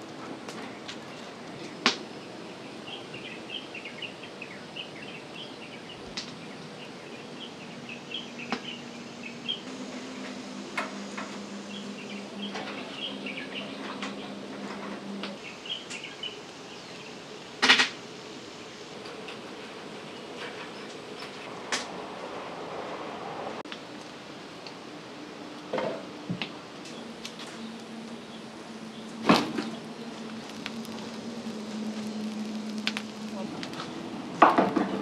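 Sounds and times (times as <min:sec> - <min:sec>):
low steady hum: 0:00.0 - 0:35.0
small birds chirping: 0:00.7 - 0:22.4, 0:26.8 - 0:34.1
sharp clicks: 0:29.6 - 0:33.9.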